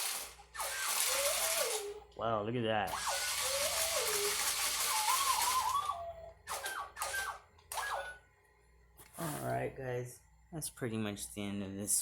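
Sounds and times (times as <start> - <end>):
toy robot warbling whistles: 0.5 - 2.1, 2.9 - 8.2.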